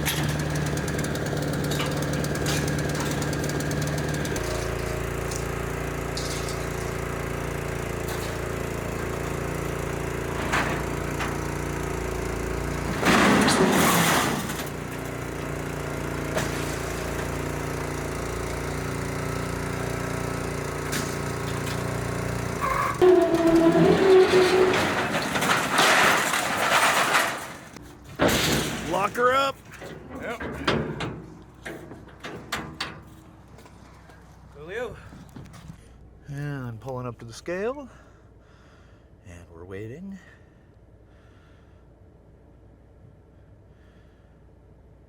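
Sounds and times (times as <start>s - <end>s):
machine running steadily: 0.0s - 23.2s.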